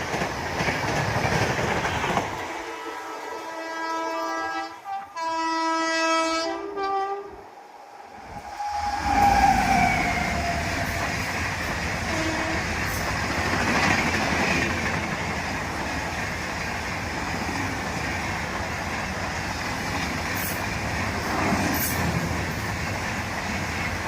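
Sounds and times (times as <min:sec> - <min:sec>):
train wheels rumbling and clattering: 0:00.0 - 0:02.9, 0:08.0 - 0:24.0
train horn blast: 0:02.6 - 0:11.3, 0:12.0 - 0:12.9.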